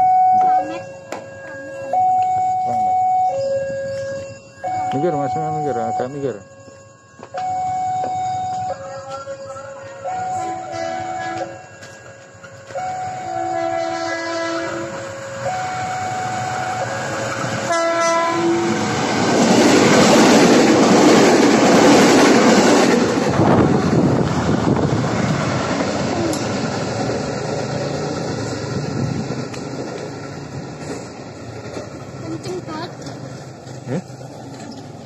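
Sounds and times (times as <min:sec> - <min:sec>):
electric train passing: 0:00.0 - 0:35.0
train horn blast: 0:10.0 - 0:11.6, 0:12.8 - 0:19.0.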